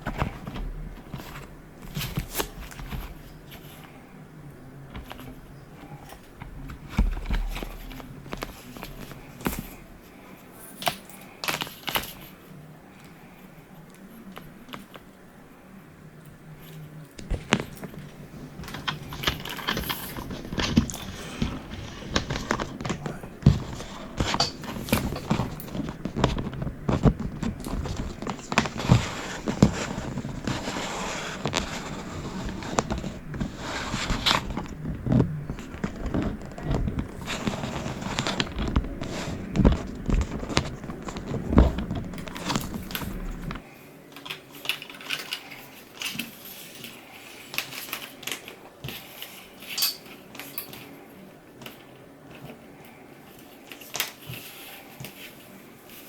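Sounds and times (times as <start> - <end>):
low steady hum: 0.0 - 56.0
hard objects clicking and knocking: 4.8 - 10.2, 17.2 - 46.4.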